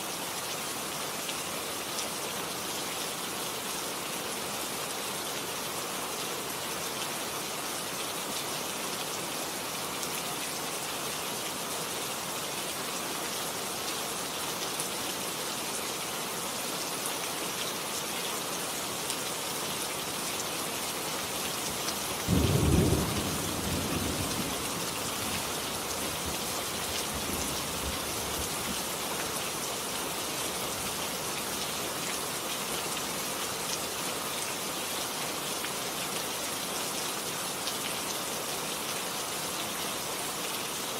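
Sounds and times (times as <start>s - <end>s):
steady rain: 0.0s - 40.9s
rumbling thunderclap: 22.3s - 24.6s.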